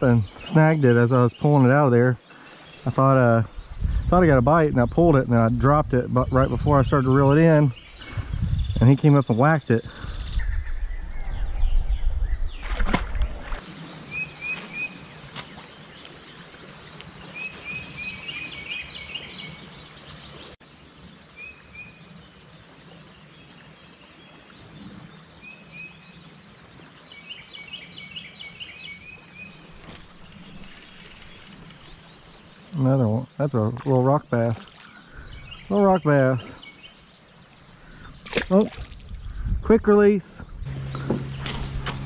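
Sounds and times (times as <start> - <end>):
songbirds chirping: 0.0 - 42.0
outdoor hiss: 14.2 - 15.9.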